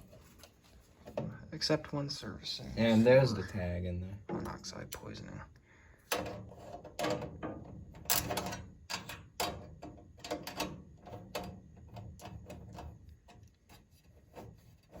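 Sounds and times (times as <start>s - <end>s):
sharp metal clicks and knocks: 6.1s - 13.4s.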